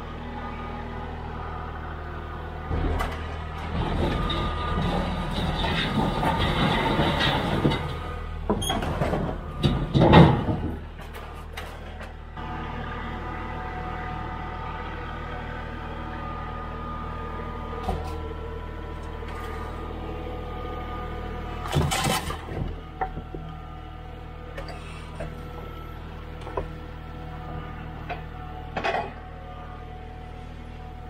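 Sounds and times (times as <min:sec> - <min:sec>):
engine running: 0:00.0 - 0:31.0
loud mechanical noise: 0:00.0 - 0:31.0
clunks and knocks: 0:02.6 - 0:12.2, 0:21.6 - 0:23.6, 0:26.4 - 0:26.8, 0:28.0 - 0:29.2.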